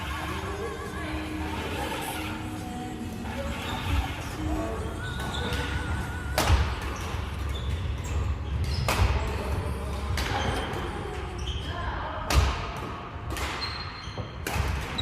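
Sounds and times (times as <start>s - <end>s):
shoe squeaks on court floor: 3.4s - 9.6s, 10.2s - 11.8s, 13.4s - 15.0s
racket hitting shuttle: 8.6s - 9.2s, 12.3s - 15.0s.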